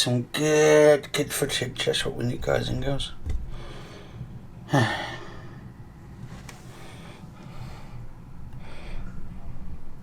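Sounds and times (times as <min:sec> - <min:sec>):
low background hum: 0:00.0 - 0:10.0
quiet breaths: 0:03.4 - 0:09.9
man sighing: 0:04.7 - 0:05.4.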